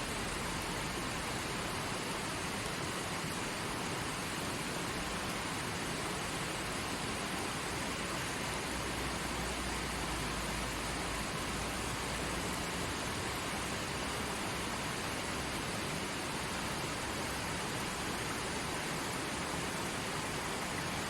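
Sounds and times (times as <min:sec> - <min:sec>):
stream running over rocks: 0:00.0 - 0:21.0.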